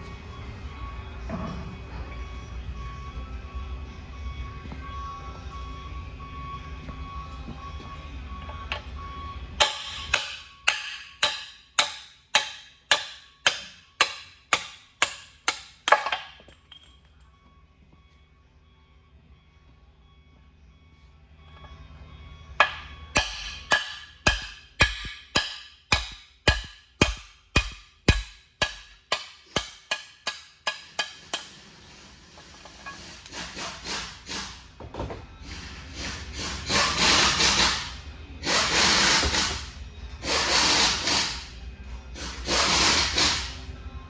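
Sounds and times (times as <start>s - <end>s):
hammer striking metal: 9.6s - 16.9s, 22.6s - 31.8s.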